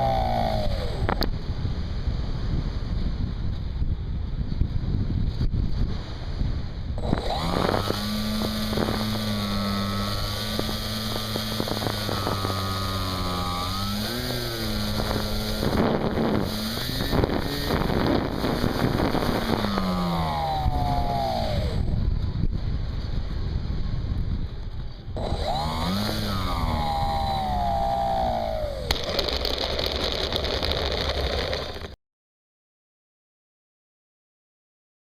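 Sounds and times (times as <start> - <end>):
model airplane motor drone: 0.0 - 2.2, 6.9 - 22.4, 24.5 - 32.0
wind noise on microphone: 0.0 - 32.0.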